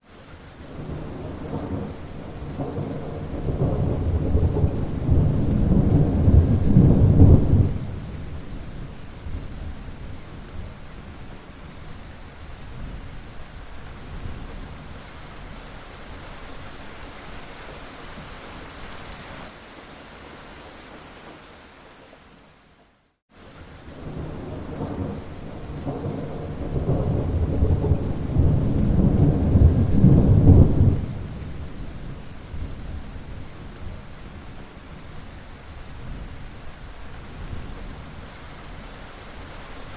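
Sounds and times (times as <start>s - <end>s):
steady rain falling: 0.0s - 39.9s
thunder rolling: 0.7s - 10.0s, 23.9s - 33.5s.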